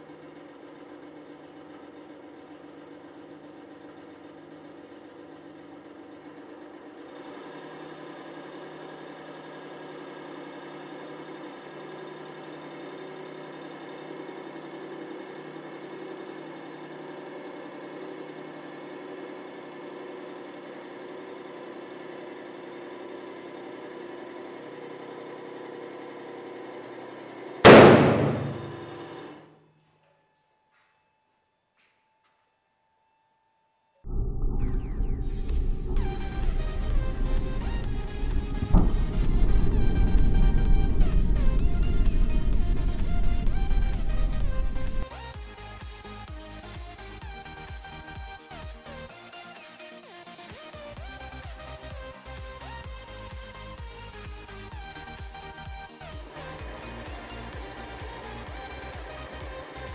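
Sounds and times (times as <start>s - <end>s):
ball bursting with loud bang: 27.6s - 29.1s
hydraulic pump humming: 27.6s - 29.3s, 34.1s - 45.2s.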